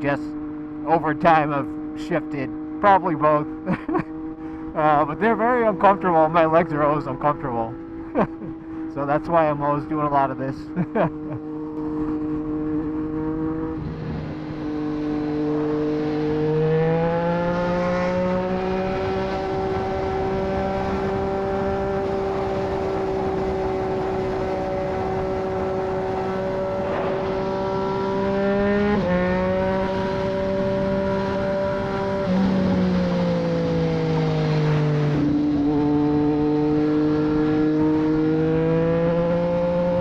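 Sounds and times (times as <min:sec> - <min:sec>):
motorcycle engine revving: 0:00.0 - 0:40.0
wind rushing: 0:24.9 - 0:30.9.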